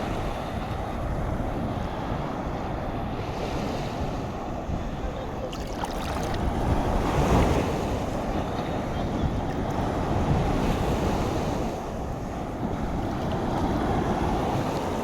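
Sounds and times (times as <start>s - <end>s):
sea waves washing in: 0.0s - 8.8s
wind buffeting microphone: 0.0s - 15.0s.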